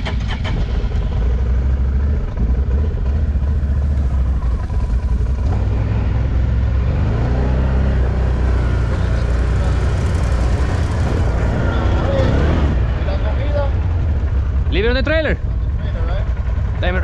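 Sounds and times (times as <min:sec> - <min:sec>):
off-road vehicle engine rumbling: 0:00.0 - 0:17.0.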